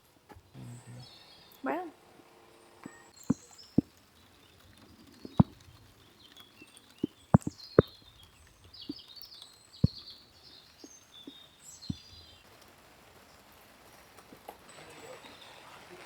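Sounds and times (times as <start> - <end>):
small birds chirping: 0.0 - 16.0
sharp knocks: 5.2 - 5.7, 7.0 - 8.0.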